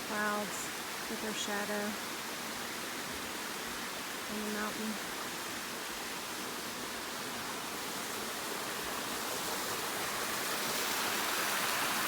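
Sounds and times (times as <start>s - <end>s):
rushing waterfall: 0.0s - 12.0s.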